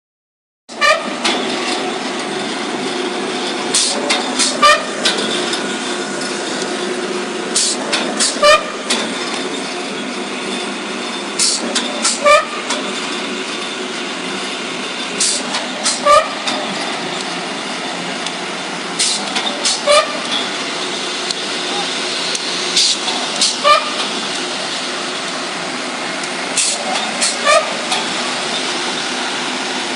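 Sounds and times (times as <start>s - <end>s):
pile driver machinery drone: 0.7s - 29.9s
short hiss of air: 11.4s - 12.2s.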